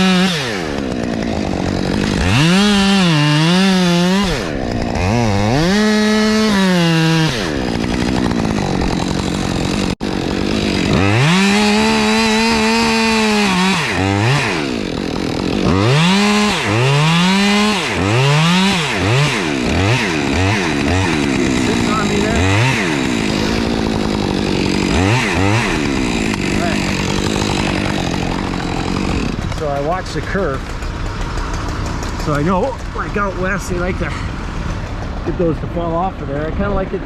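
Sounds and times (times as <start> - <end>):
chainsaw cutting wood: 0.0 - 37.0.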